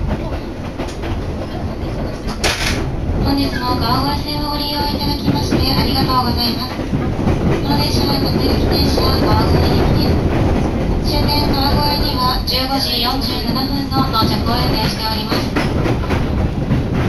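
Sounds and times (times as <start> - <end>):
high train whine: 0.0 - 17.0
train wheels rumbling on track: 0.0 - 17.0.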